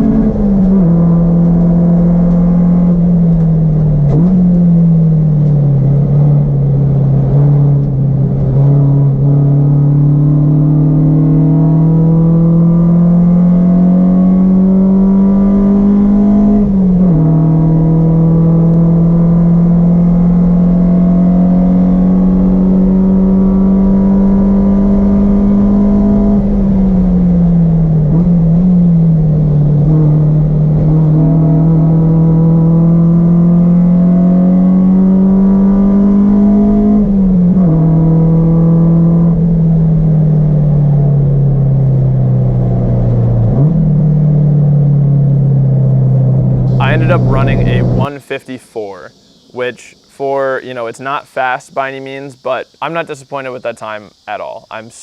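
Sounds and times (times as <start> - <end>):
car engine at high revs: 0.0 - 48.2.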